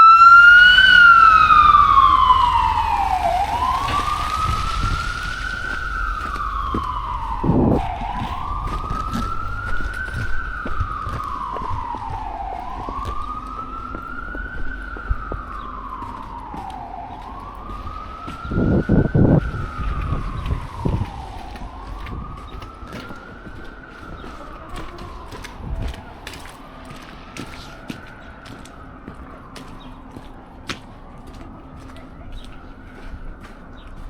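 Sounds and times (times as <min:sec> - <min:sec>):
siren wailing: 0:00.0 - 0:34.0.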